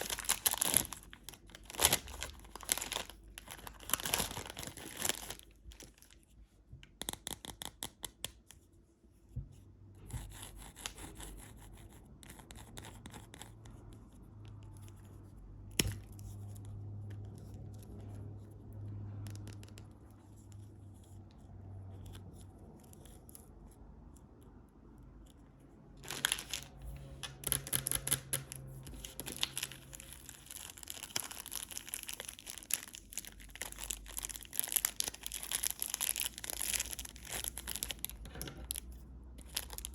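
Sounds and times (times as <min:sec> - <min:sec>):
candy wrappers crinkling: 0:00.0 - 0:06.2, 0:26.0 - 0:39.9
wrapper rubbing: 0:00.0 - 0:06.2, 0:26.0 - 0:39.9.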